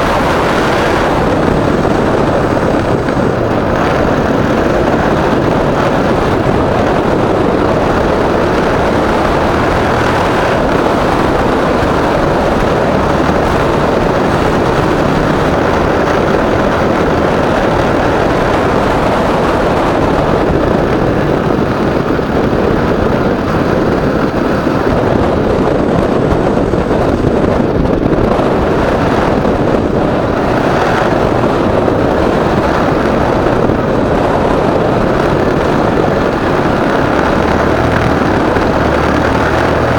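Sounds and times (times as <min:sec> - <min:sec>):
motorcycle engine: 0:00.0 - 0:39.9
wind rushing on microphone: 0:00.0 - 0:39.9.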